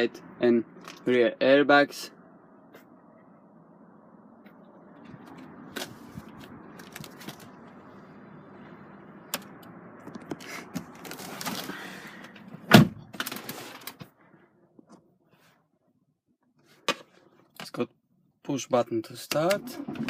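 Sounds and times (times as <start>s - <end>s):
car door thunk: 12.6s - 13.0s.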